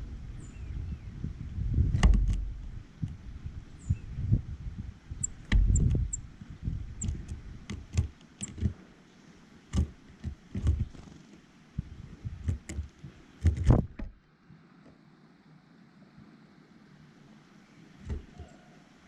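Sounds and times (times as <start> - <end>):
birds tapping and pecking: 5.2 - 6.3, 7.0 - 8.8, 9.7 - 14.2, 18.0 - 18.5.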